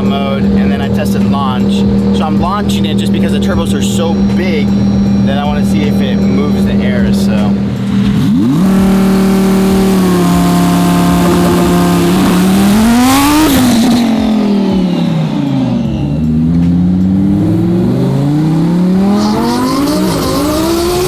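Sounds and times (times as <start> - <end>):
car engine revving and accelerating: 0.0 - 21.0.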